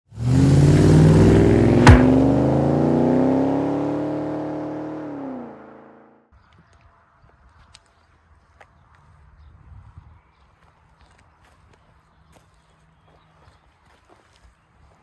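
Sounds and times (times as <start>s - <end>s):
car engine revving: 0.2s - 6.0s
sharp crack: 1.4s - 2.6s.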